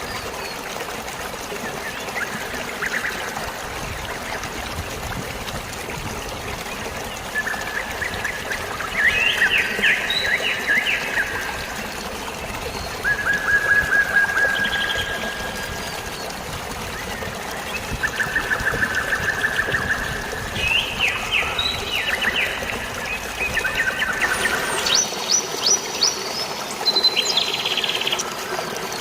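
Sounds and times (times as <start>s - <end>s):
trickling water: 0.0s - 29.0s
birds chirping: 6.8s - 29.0s.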